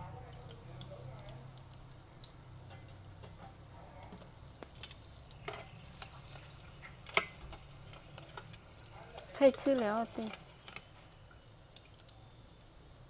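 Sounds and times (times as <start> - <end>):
utensils clinking on cookware: 5.4 - 6.1.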